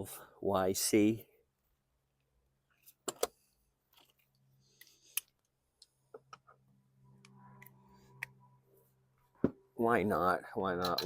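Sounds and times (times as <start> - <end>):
low steady hum: 4.0 - 11.0.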